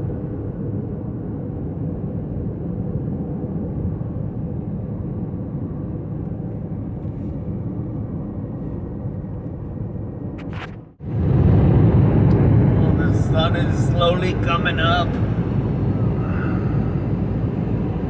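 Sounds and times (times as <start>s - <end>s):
car road and engine rumble: 4.0s - 18.0s.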